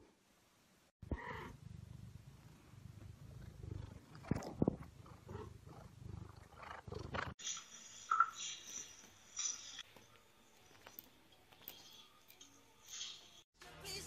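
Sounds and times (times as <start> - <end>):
cat purring: 1.0 - 7.4.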